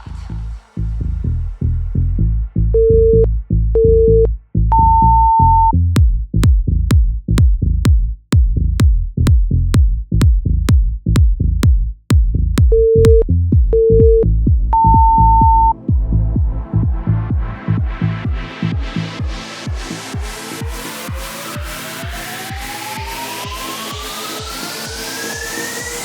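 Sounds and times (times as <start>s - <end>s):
interval timer beeps: 2.8s - 5.7s, 12.6s - 15.8s
electronic dance music: 10.7s - 26.0s
sharp timer ticks: 12.6s - 13.2s, 14.8s - 15.7s.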